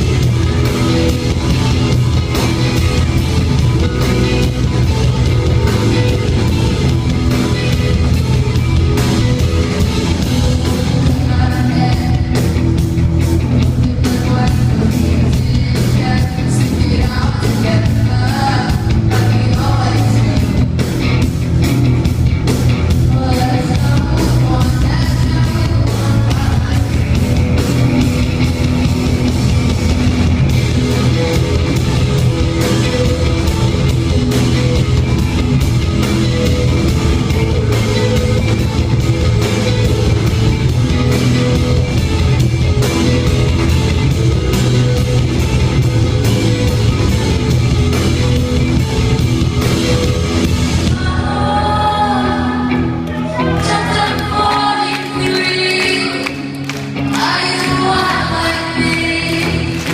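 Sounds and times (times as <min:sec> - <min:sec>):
rock band playing: 0:00.0 - 0:59.9
woman singing: 0:10.8 - 0:12.6, 0:13.6 - 0:20.8, 0:23.1 - 0:27.2, 0:50.8 - 0:59.9.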